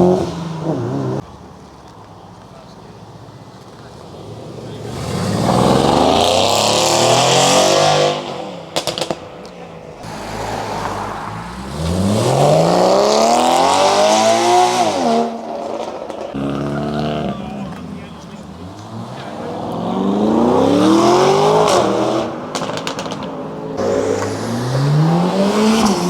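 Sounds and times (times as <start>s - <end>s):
car engine accelerating hard: 4.3s - 9.2s, 10.0s - 26.0s
sharp exhaust cracks: 21.6s - 24.5s.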